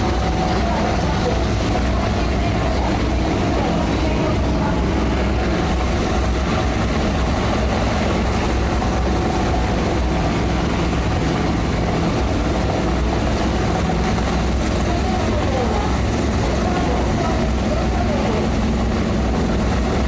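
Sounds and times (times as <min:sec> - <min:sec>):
engine drone with low hum: 0:00.0 - 0:20.0.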